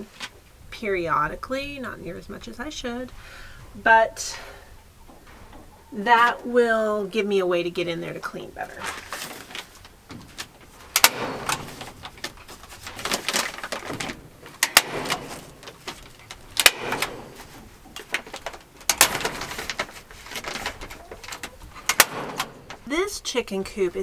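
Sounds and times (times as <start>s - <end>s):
sack rustling: 8.6s - 23.0s.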